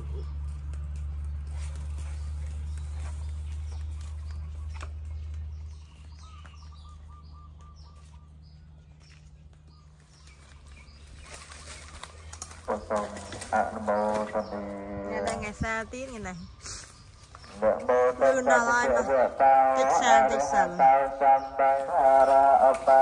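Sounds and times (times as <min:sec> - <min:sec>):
small birds chirping: 0:00.0 - 0:23.0
bird trill: 0:02.0 - 0:08.8.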